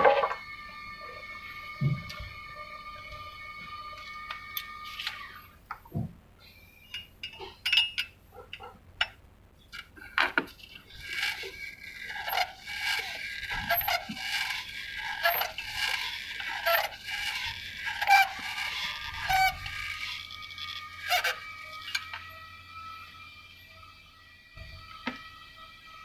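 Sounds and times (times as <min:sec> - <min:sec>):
metal tools clinking: 0:06.9 - 0:08.1.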